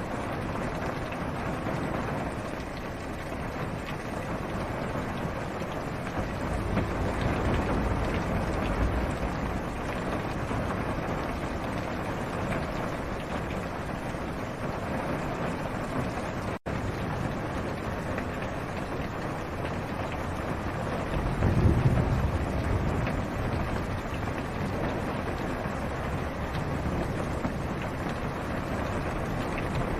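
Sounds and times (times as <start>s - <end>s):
rain drumming on car roof: 0.0s - 29.9s
low rumble: 6.2s - 10.7s.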